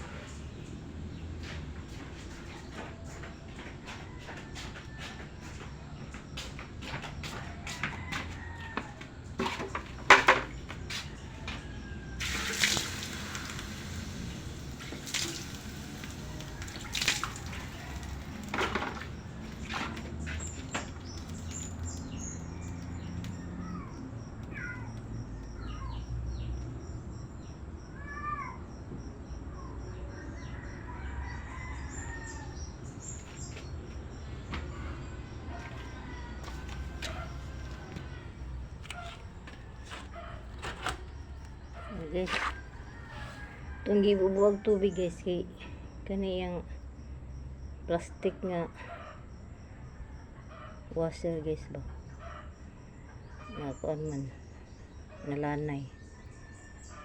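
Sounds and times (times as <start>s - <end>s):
knocks and clanks: 9.4s - 10.8s.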